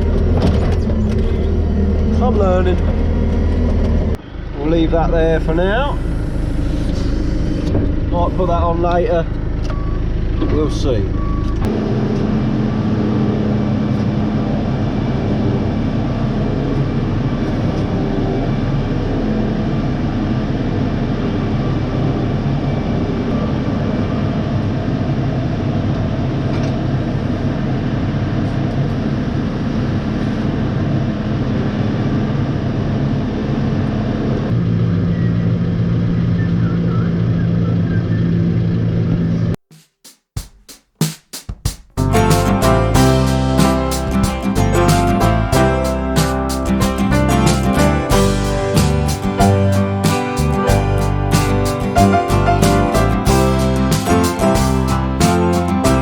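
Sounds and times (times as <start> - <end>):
machinery engine running: 0.0 - 26.2, 42.0 - 56.0.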